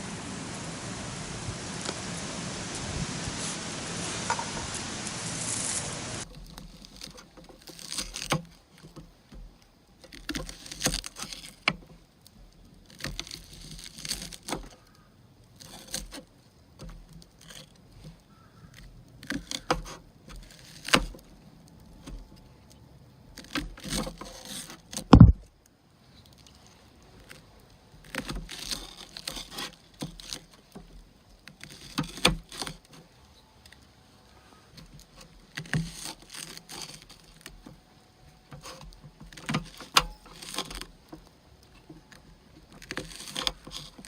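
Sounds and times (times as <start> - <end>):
steady hiss: 0.0 - 6.2
heavy thump: 25.1 - 25.4.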